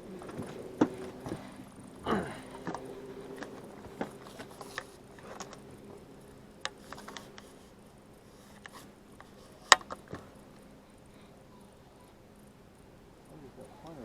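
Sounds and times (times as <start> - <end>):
faint steady hum: 0.0 - 14.0
fishing gear clicks and knocks: 0.2 - 7.6, 8.5 - 10.4.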